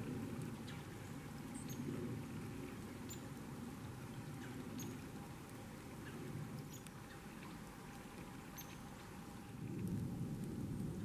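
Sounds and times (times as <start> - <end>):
low background rumble: 0.0 - 11.0
small birds chipping: 6.0 - 9.1.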